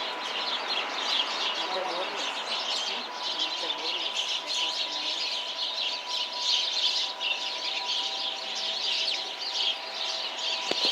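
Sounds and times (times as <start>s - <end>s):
flock of small birds chirping: 0.0s - 10.9s.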